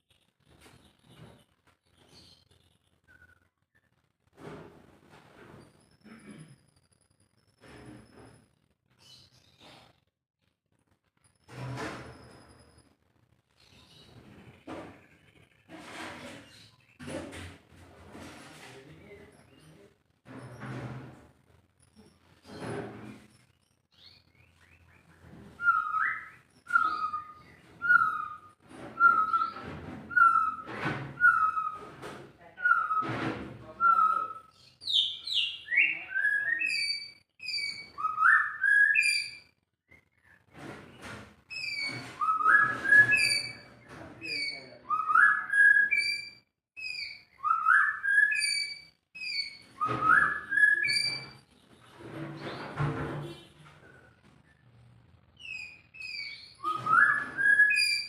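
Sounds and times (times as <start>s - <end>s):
bird whistling song: 25.6s - 31.9s, 33.8s - 40.4s, 41.5s - 43.7s, 44.3s - 51.3s, 55.4s - 58.0s.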